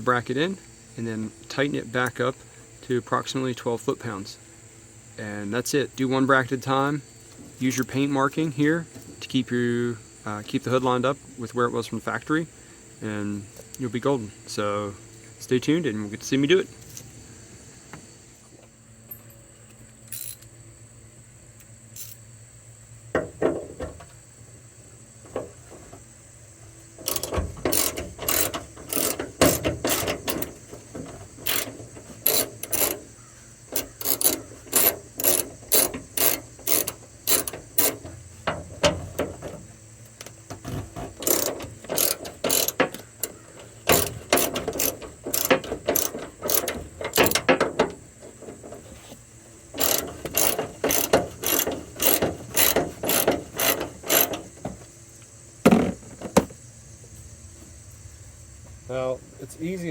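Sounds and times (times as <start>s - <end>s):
ratchet wrench clicking: 27.0s - 30.6s, 31.4s - 38.1s, 41.2s - 47.6s, 49.7s - 54.5s.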